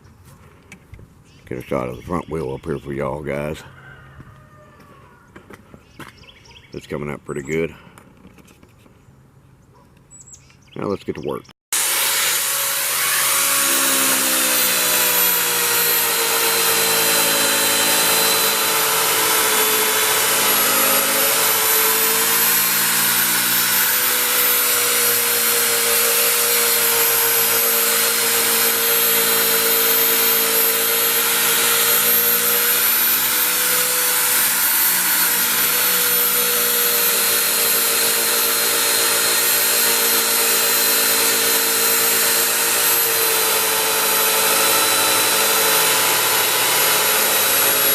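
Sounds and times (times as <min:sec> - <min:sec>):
electric polisher buffing metal: 0:11.8 - 0:47.9.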